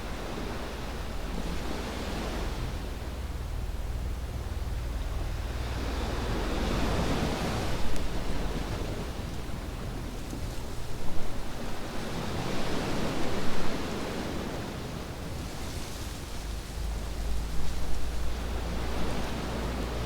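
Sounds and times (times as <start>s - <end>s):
waves washing onto beach: 4.6s - 20.0s.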